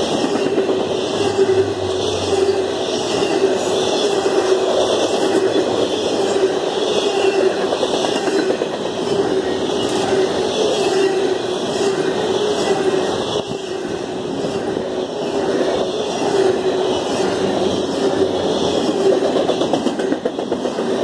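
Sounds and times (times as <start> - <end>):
freight train wheels rumbling on rail: 0.0 - 21.0
steady tone: 0.8 - 3.7.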